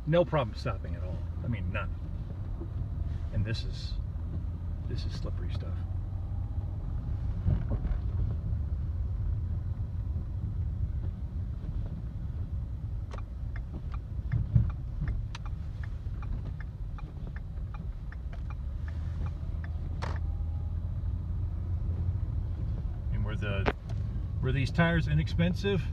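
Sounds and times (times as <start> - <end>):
car driving on snowy road: 0.0 - 25.9
light evenly spaced ticks: 12.9 - 20.8.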